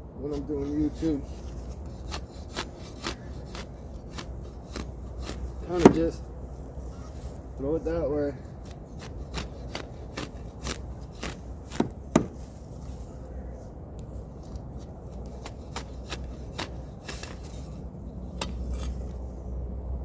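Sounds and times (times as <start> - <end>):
shovel chopping into soil: 0.3 - 6.2, 8.5 - 12.6, 14.4 - 17.8, 18.4 - 19.2.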